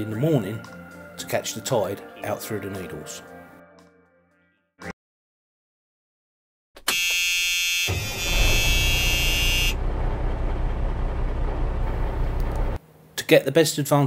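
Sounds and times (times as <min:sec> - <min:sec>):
alarm clock buzzing: 0:06.9 - 0:09.8
low engine rumble: 0:08.0 - 0:12.8.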